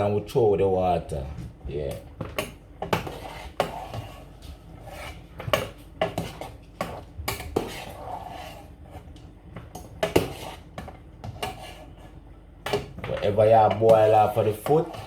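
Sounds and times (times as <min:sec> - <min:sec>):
pots and metal utensils clattering: 0:05.3 - 0:08.6, 0:09.6 - 0:12.0, 0:12.6 - 0:15.0.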